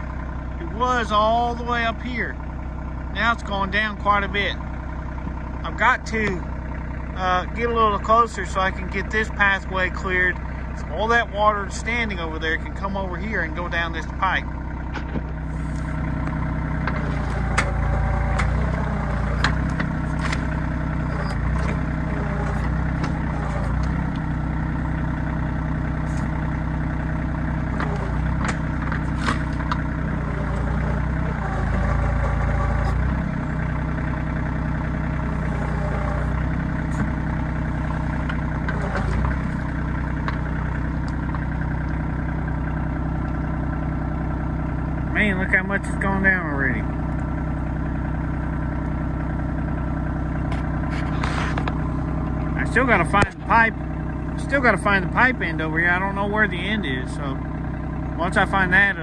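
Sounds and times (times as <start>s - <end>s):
tractor diesel engine running: 0.0s - 59.0s
backhoe metal clicks and knocks: 14.8s - 24.6s, 27.7s - 33.2s.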